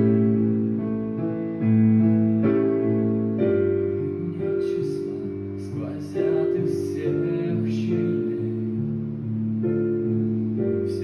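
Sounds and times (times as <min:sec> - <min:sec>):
piano chords: 0:00.0 - 0:11.0
person singing: 0:03.8 - 0:09.0.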